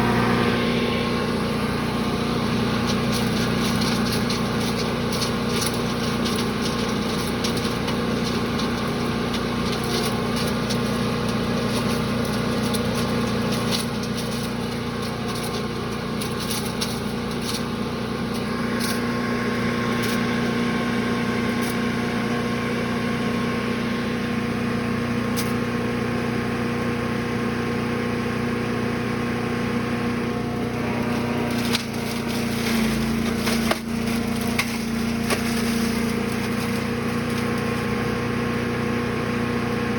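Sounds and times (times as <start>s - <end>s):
small gas engine running: 0.0s - 39.9s
material ticking through shredder: 1.6s - 20.7s, 30.6s - 38.6s.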